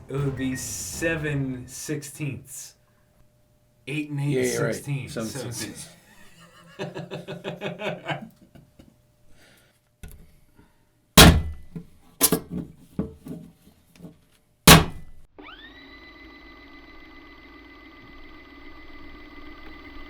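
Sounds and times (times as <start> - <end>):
steady tone: 0.0 - 2.7
blade taking heavy thunks: 11.2 - 11.7, 14.7 - 15.2.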